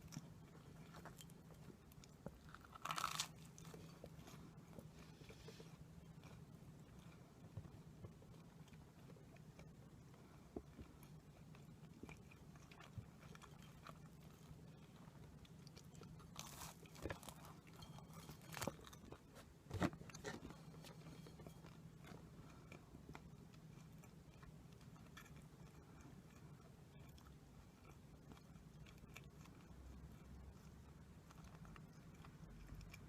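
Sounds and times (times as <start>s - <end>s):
low steady hum: 0.0s - 33.0s
crunching snack: 2.0s - 4.1s, 15.4s - 20.9s.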